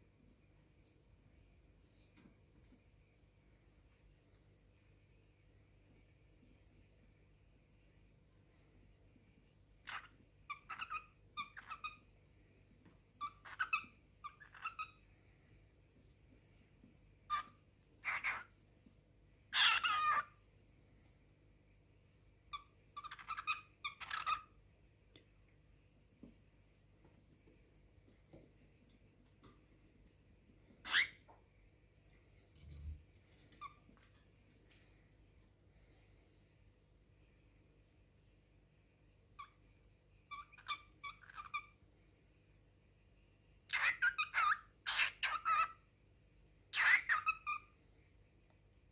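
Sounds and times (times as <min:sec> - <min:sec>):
cockatiel chirping: 0:09.8 - 0:12.1, 0:13.2 - 0:15.0, 0:17.3 - 0:18.5, 0:19.5 - 0:20.3, 0:22.5 - 0:24.6, 0:30.8 - 0:31.3, 0:40.3 - 0:41.8, 0:43.7 - 0:45.8, 0:46.7 - 0:47.7.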